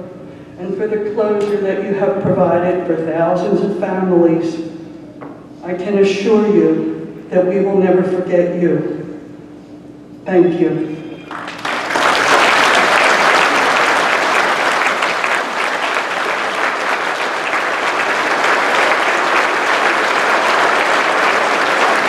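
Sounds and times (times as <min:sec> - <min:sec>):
audience applauding: 0:11.2 - 0:22.0.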